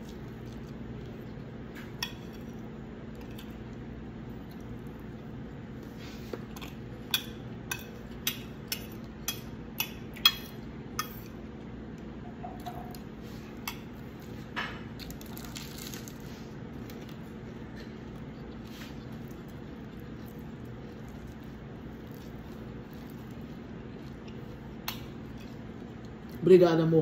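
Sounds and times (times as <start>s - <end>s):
faint steady hum: 0.0s - 27.0s
crunching crisp lettuce: 15.0s - 26.5s.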